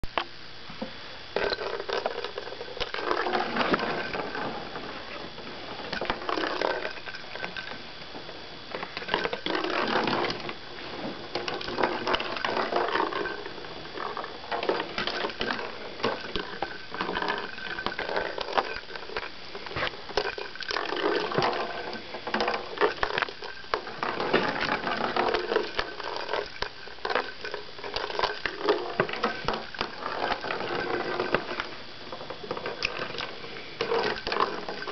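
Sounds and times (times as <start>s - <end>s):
toy ball clicking and rattling: 1.4s - 4.4s, 8.9s - 10.5s, 11.3s - 19.3s, 20.1s - 31.7s, 32.6s - 34.9s.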